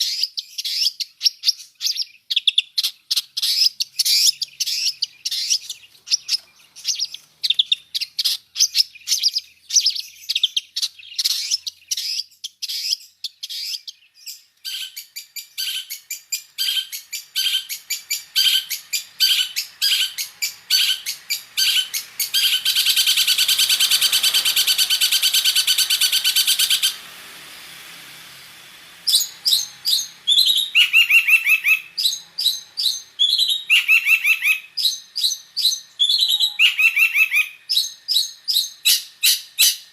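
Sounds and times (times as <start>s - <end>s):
bird singing: 0.0s - 27.5s, 28.2s - 39.9s.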